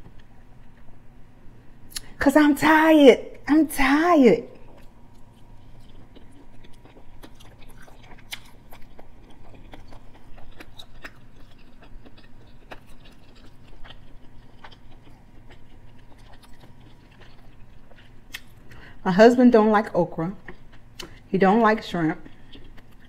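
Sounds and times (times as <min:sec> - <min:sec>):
wet mouth clicks: 0:01.9 - 0:02.1, 0:21.0 - 0:21.2
close chewing: 0:04.5 - 0:18.8, 0:22.2 - 0:23.0.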